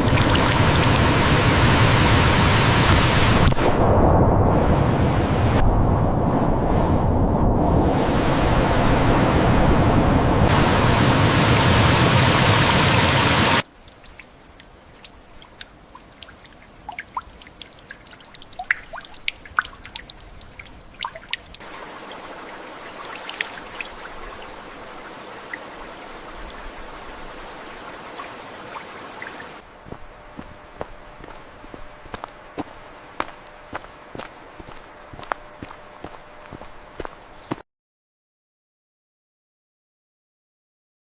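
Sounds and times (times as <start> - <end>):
soft steady water flow: 0.0 - 3.3, 13.6 - 37.6
loud rushing water: 0.0 - 3.9, 7.8 - 37.6
water drops plinking: 13.7 - 21.6.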